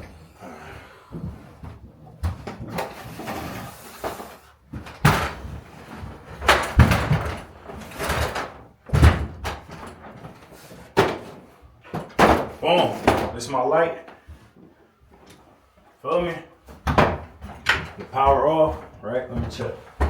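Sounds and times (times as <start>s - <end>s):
heavy knocks and thumps: 4.7s - 10.4s, 11.0s - 13.5s, 16.2s - 20.0s.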